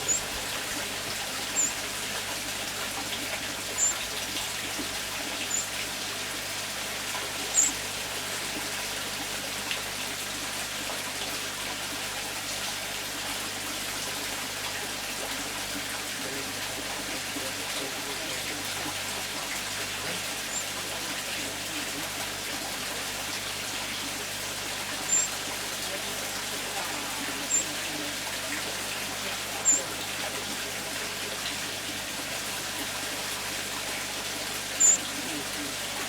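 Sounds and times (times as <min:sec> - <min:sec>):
small bird chirps: 0:00.0 - 0:00.5, 0:01.5 - 0:01.8, 0:03.8 - 0:04.1, 0:05.4 - 0:05.7, 0:07.5 - 0:07.8, 0:20.5 - 0:20.7, 0:25.1 - 0:25.4, 0:27.4 - 0:27.8, 0:29.6 - 0:29.9, 0:34.8 - 0:35.1
pond water trickling: 0:00.0 - 0:36.0.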